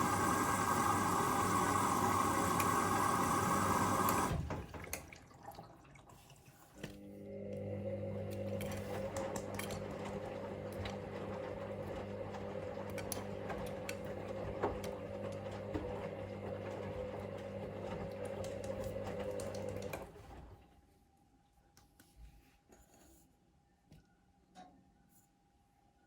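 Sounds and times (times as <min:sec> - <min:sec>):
washing machine motor hum: 0:00.0 - 0:20.8.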